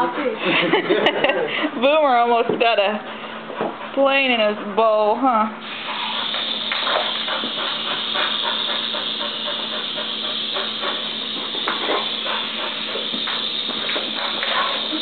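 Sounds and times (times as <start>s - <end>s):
toy helicopter motor whirring: 5.7s - 15.0s.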